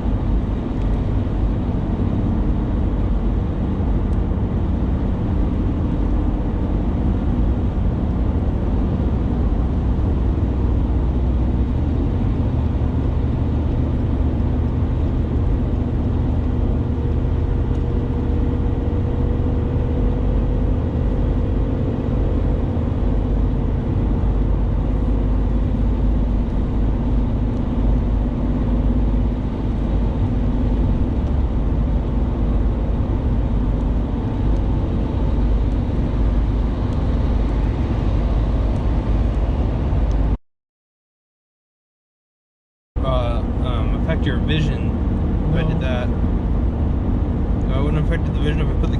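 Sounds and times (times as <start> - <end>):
vehicle cabin road and engine rumble: 0.0 - 40.4, 43.0 - 48.9.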